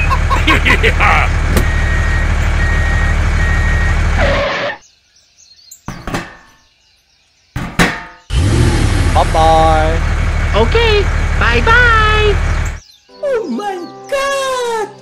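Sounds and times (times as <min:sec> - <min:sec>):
small tractor engine running: 0:00.0 - 0:04.4, 0:08.3 - 0:12.8.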